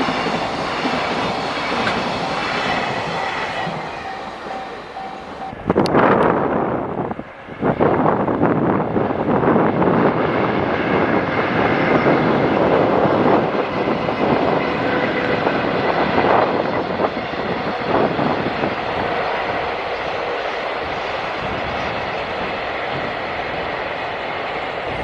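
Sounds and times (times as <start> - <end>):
faint train clatter: 0.0 - 5.5
train wheels rumbling on rails: 0.0 - 25.0.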